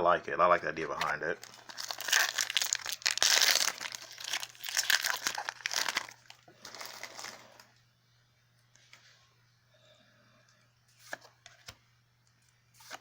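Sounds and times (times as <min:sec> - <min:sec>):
foil wrapper crinkling: 0:01.0 - 0:07.7.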